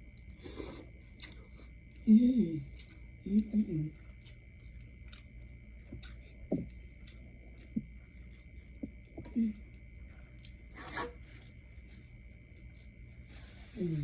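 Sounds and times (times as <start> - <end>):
person chewing with mouth smacks: 1.1 - 1.6, 4.1 - 10.6.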